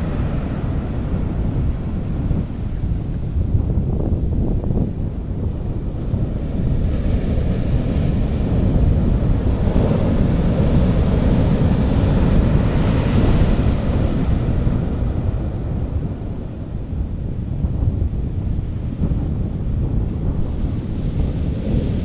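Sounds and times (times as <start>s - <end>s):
wind rumble on microphone: 0.0s - 22.0s
sea waves washing onto beach: 6.0s - 16.7s, 20.1s - 22.0s.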